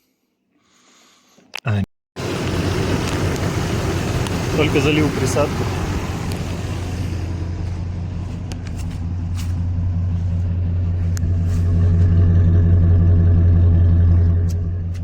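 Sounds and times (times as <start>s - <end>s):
car engine idling: 2.2s - 15.0s
faint engine ticks: 2.4s - 12.8s.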